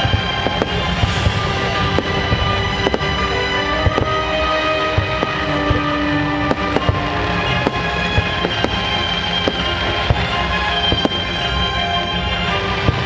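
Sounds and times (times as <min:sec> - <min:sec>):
fireworks bangs: 0:00.0 - 0:11.8
music playing: 0:00.0 - 0:13.0.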